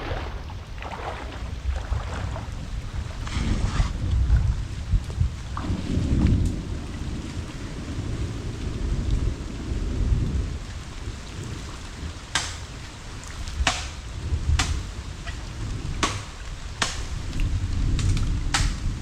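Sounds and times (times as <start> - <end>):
rain: 0.0 - 19.0
sharp snaps: 12.4 - 12.7, 16.0 - 17.1.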